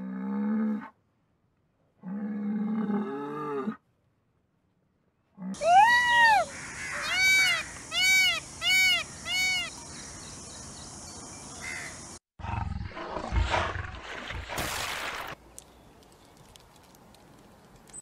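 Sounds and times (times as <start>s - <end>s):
peacock wailing calls: 5.6s - 10.3s.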